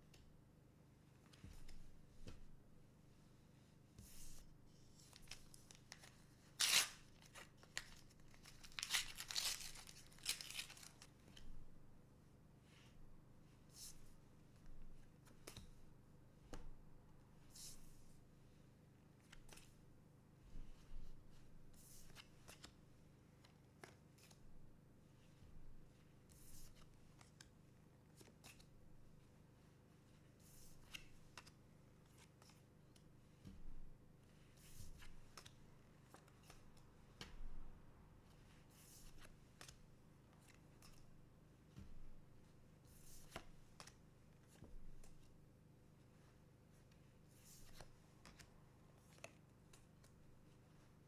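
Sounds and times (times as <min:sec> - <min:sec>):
wrapper crinkling: 0:05.2 - 0:11.1
wrapper ripping: 0:05.7 - 0:11.0.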